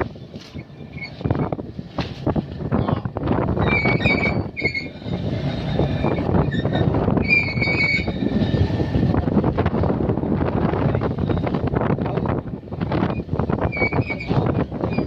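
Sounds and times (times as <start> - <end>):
boat engine and deck machinery: 0.0 - 15.0
high-pitched squeal: 3.6 - 9.0.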